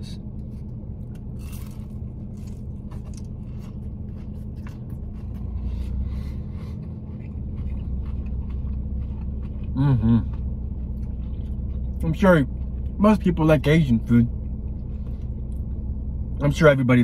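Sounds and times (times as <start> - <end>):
low hum inside car: 0.0 - 17.0
crunchy chewing: 0.4 - 13.3.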